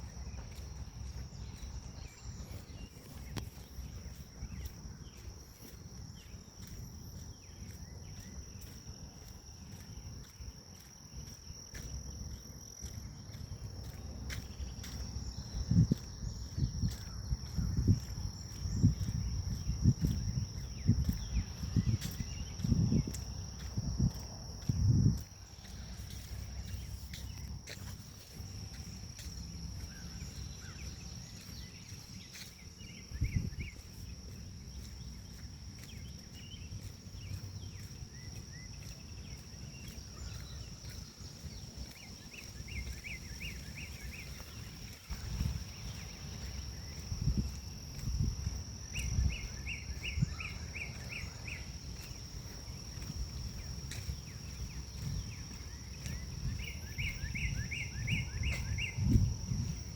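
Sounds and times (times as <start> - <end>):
grass insects droning: 0.0 - 59.9
wind on microphone: 15.4 - 28.1, 32.9 - 33.9, 42.8 - 52.1, 52.7 - 59.9.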